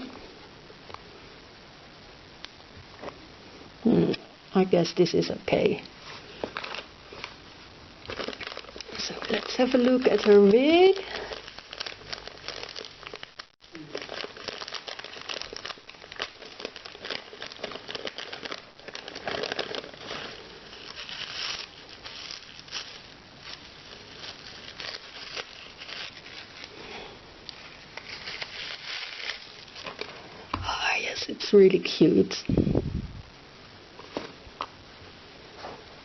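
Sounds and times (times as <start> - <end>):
packaging crinkling: 6.1 - 30.3.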